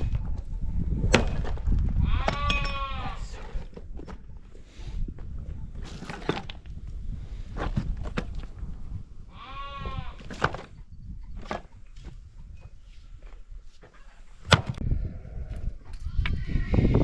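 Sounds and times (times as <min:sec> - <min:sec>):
wavering bleat: 0:02.0 - 0:03.3, 0:09.3 - 0:10.2.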